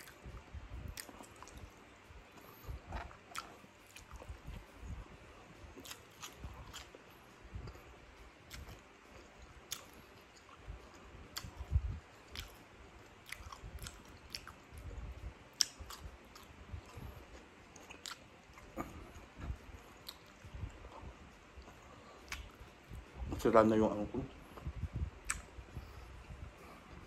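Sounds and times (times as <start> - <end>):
wet mouth chewing clicks: 2.4 - 5.0, 5.8 - 7.8, 8.4 - 12.6, 13.2 - 14.9, 15.5 - 22.7, 24.6 - 26.0
soft low thumps: 10.6 - 12.1, 24.1 - 27.0.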